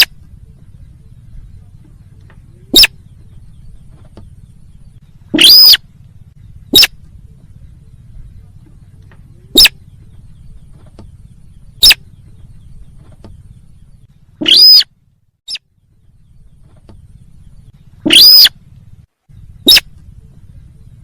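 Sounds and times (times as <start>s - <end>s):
low steady hum: 0.0s - 21.0s
recorded bird call: 0.0s - 21.0s.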